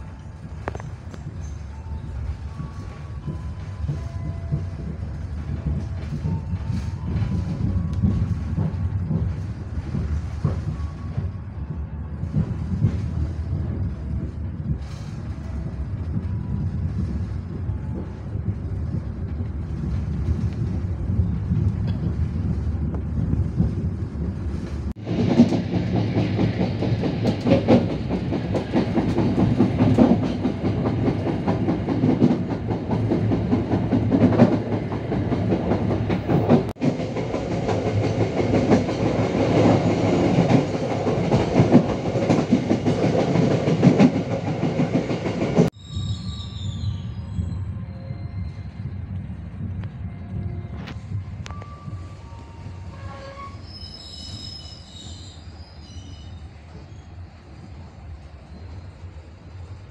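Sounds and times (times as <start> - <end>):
bright train clatter: 0.0 - 59.9
train coach rumbling: 0.0 - 59.9.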